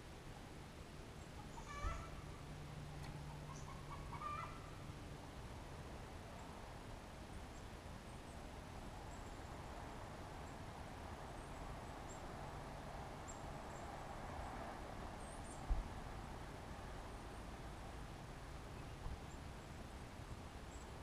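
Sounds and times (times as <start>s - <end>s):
steady outdoor hiss: 0.0s - 21.0s
songbirds chirping: 0.2s - 21.0s.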